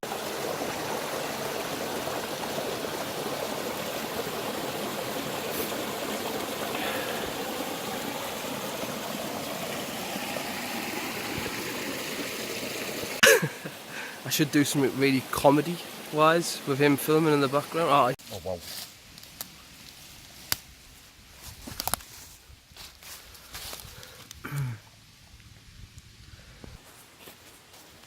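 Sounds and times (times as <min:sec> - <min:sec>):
running water rushing: 0:00.0 - 0:18.6.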